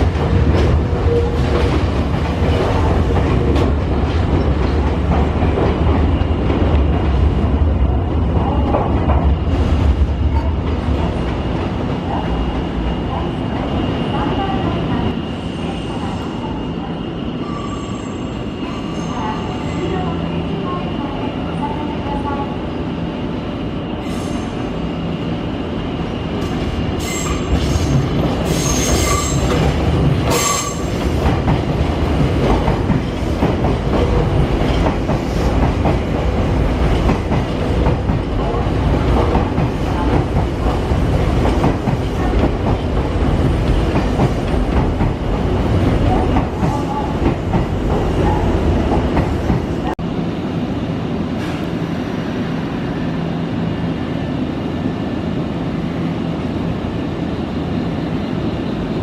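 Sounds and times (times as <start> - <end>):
electric train rumbling: 0.0 - 59.0
train wheel squeals: 17.4 - 19.9, 27.0 - 29.6, 30.3 - 31.0.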